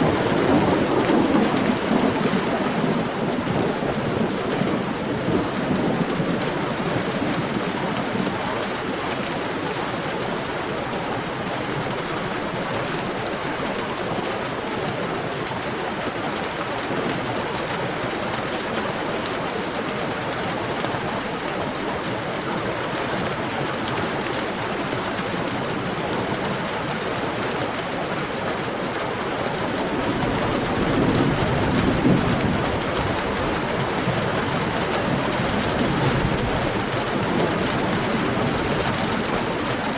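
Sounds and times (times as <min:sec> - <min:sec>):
heavy rain hissing: 0:00.0 - 0:39.9
low thunder rumble: 0:29.6 - 0:39.6.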